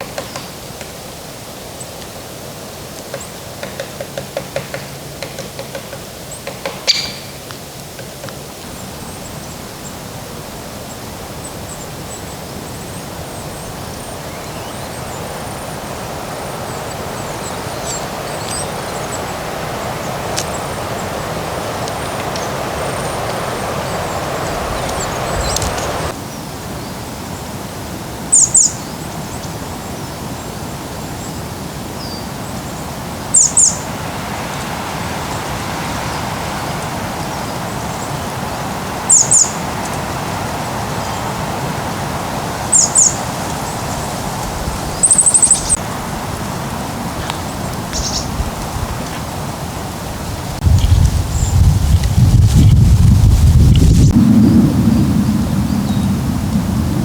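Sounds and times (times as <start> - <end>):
small birds chirping: 6.3 - 7.4, 10.9 - 26.2, 34.5 - 49.2, 50.5 - 54.2
steady rushing noise: 13.2 - 26.2, 33.8 - 57.0.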